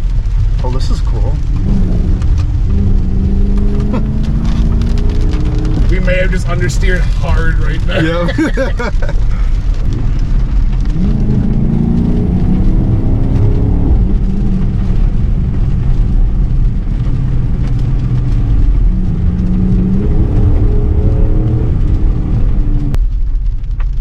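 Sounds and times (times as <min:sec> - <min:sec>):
tyres hissing on wet road: 0:00.0 - 0:22.9
car engine accelerating hard: 0:00.5 - 0:23.0.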